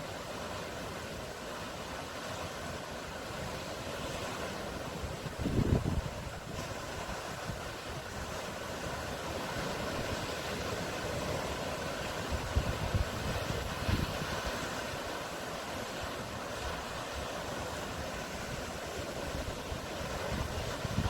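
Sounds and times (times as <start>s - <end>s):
sea surf washing: 0.0s - 21.0s
wind buffeting microphone: 5.1s - 8.4s, 9.6s - 15.1s, 16.7s - 21.0s.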